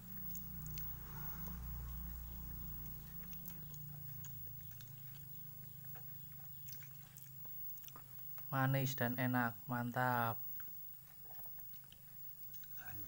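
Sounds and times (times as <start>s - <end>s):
person chewing soft fruit: 0.0s - 9.2s, 9.9s - 13.0s
low steady hum: 0.0s - 13.0s
wet mouth clicks and smacks: 0.2s - 8.5s.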